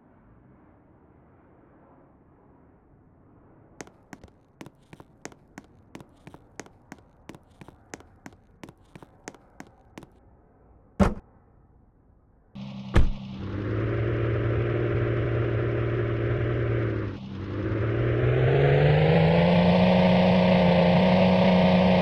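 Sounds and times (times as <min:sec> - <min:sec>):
loud thump: 0:11.0 - 0:11.2, 0:12.9 - 0:13.2.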